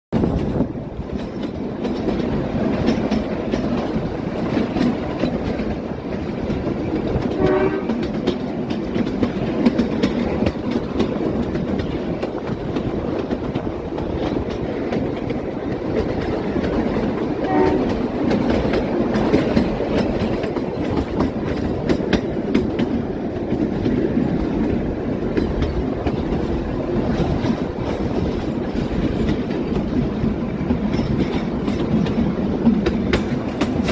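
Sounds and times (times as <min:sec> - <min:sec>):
train rumble and wheel clatter: 0:00.1 - 0:33.9
train horn blast: 0:07.2 - 0:08.2, 0:17.4 - 0:18.1.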